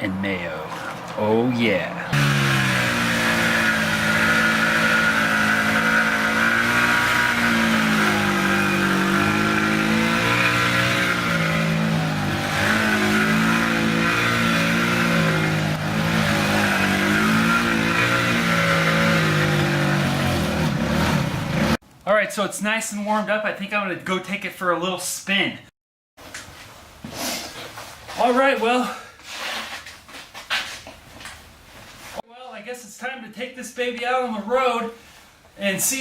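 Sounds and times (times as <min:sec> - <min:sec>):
scooter engine running: 0:02.0 - 0:21.8.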